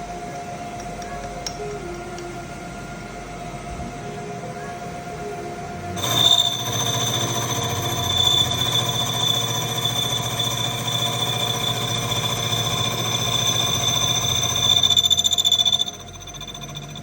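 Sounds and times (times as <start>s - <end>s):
electric motor whining: 5.9s - 17.0s.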